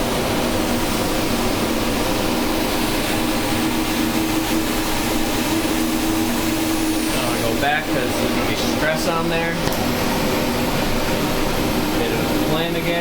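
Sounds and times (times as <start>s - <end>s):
gas torch roaring and hissing: 0.0s - 13.0s
steady low hum: 0.0s - 13.0s.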